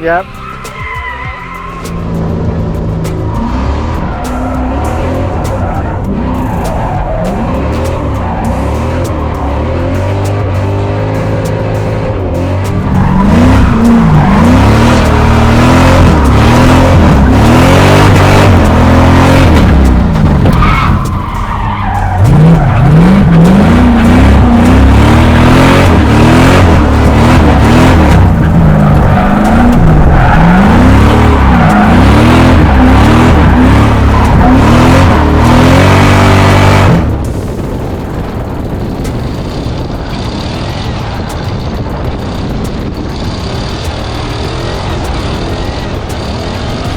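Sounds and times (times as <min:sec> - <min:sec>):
tyres skidding: 0:00.0 - 0:46.9
car engine revving hard: 0:01.9 - 0:42.1.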